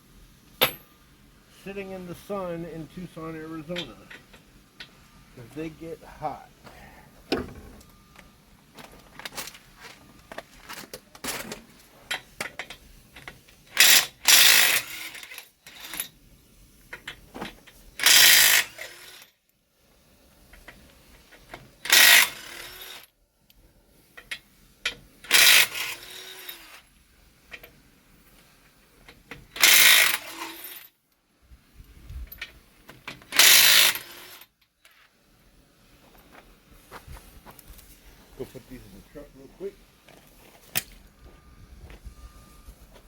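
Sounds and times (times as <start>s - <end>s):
clicks and knocks of tools: 7.3s - 14.0s, 23.5s - 25.4s.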